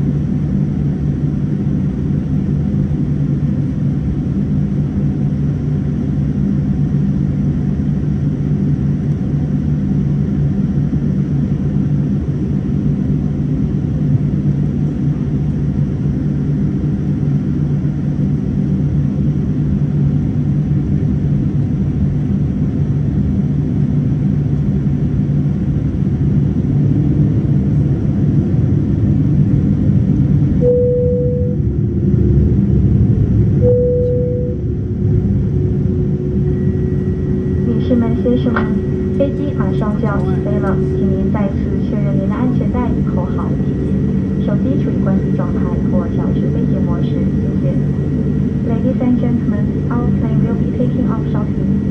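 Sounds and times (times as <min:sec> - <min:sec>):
aircraft engines rumbling: 0:00.0 - 0:51.9
constant low hum: 0:00.0 - 0:51.9
short steady tones: 0:33.6 - 0:34.6.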